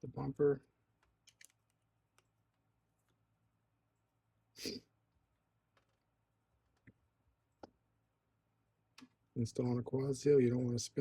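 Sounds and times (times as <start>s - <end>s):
faint clicks of small parts: 1.0s - 3.2s, 5.7s - 6.0s
person sniffing: 4.6s - 4.9s.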